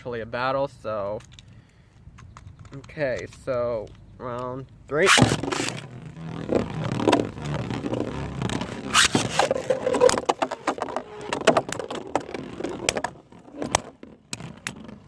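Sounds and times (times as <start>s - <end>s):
rasping swish: 5.0s - 11.3s.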